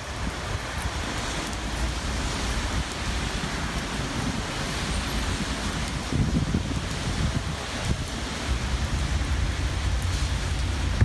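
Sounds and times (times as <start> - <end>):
rain on wet pavement: 0.0 - 11.0.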